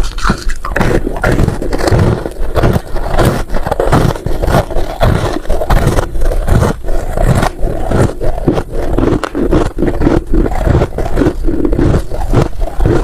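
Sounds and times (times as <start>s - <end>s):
chewing crunchy frost: 0.0s - 13.0s.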